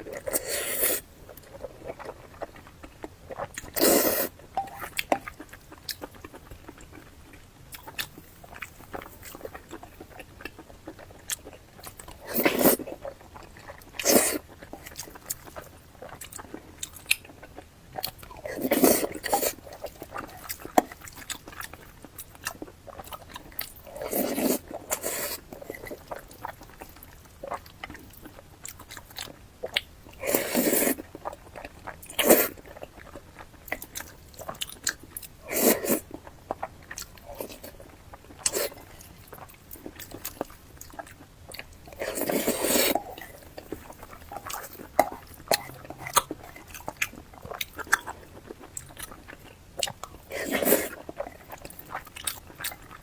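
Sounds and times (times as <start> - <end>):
noisy mouthfuls: 0.2 - 1.1, 42.0 - 46.7
wet chewing clicks: 0.2 - 53.0.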